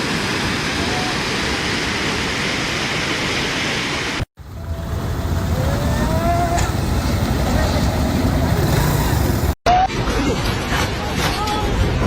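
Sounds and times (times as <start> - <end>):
rushing floodwater: 0.0 - 9.6.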